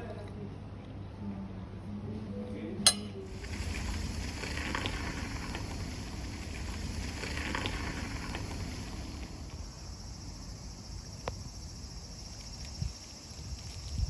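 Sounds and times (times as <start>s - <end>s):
cicadas droning: 3.3s - 14.0s.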